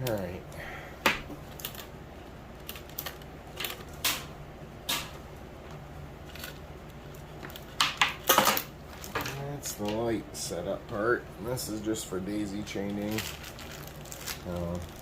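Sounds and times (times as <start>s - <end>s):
faint low hum: 0.0s - 15.0s
small parts clicking and rustling: 1.4s - 1.9s, 2.6s - 4.2s, 6.2s - 10.0s, 12.7s - 15.0s.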